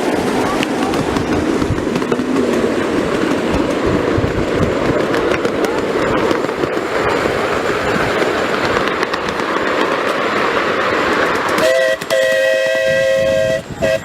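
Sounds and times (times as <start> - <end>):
train carriage rumble and rattle: 0.0 - 14.0
wheels clicking on rails: 0.0 - 14.0.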